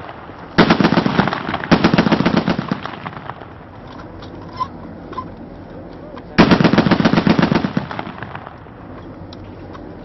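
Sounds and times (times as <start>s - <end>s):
automatic gunfire: 0.6s - 3.3s, 6.4s - 8.5s.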